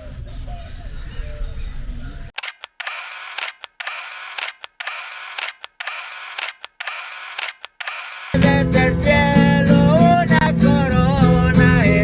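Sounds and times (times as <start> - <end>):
camera shutter clicks: 2.4 - 8.5.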